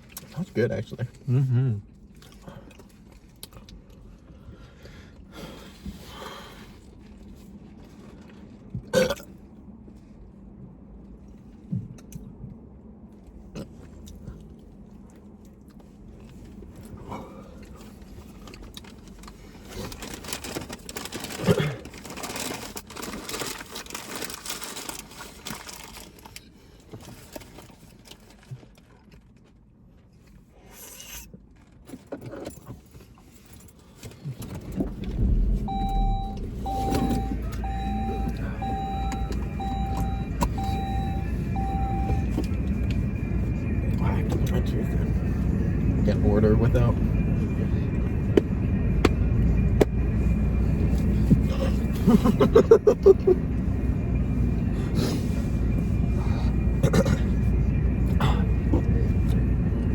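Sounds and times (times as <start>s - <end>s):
chewing and mouth noises: 1.8s - 4.5s.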